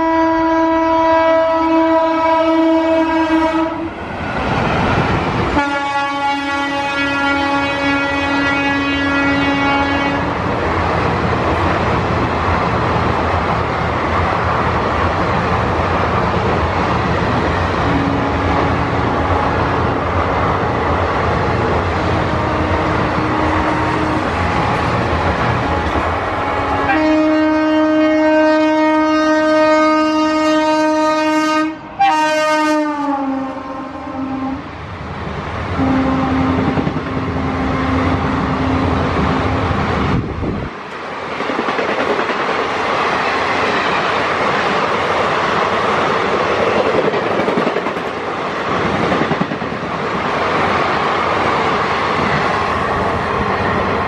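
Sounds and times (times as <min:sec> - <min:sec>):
locomotive horn: 0:00.0 - 0:03.9, 0:05.5 - 0:10.4, 0:17.8 - 0:19.6, 0:22.0 - 0:24.8, 0:25.6 - 0:34.7, 0:35.8 - 0:39.6
long locomotive horn blast: 0:00.0 - 0:04.0, 0:05.5 - 0:10.4, 0:17.8 - 0:20.0, 0:22.0 - 0:34.8, 0:35.7 - 0:39.8
train coaches rumbling and clattering: 0:00.0 - 0:54.0.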